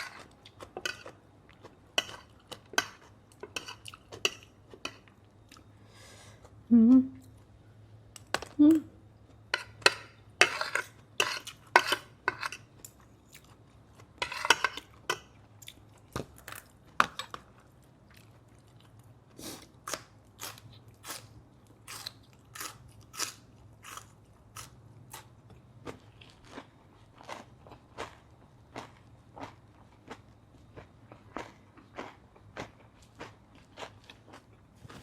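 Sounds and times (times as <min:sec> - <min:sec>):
chewing and crunching food: 0:00.0 - 0:05.8, 0:10.5 - 0:35.0.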